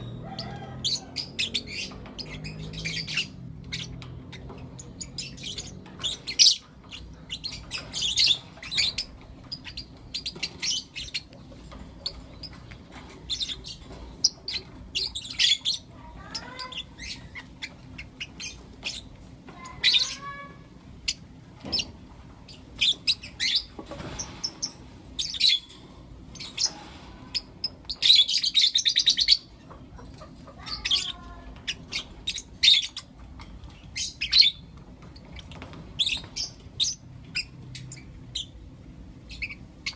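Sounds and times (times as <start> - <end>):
birds chirping: 0.0 - 39.9
rapid bird chatter: 0.0 - 39.9
squeaky bird calls: 27.4 - 33.1.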